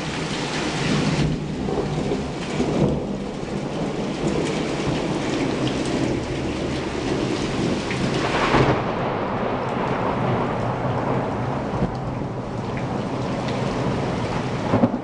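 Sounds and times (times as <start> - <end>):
heavy rain pouring: 0.0 - 15.0
thunder rumbling: 0.0 - 15.0.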